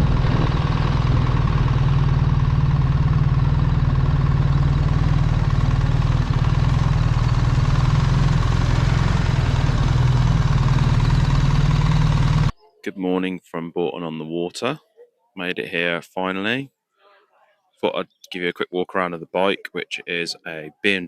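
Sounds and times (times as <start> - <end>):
motorcycle engine running: 0.0 - 12.6.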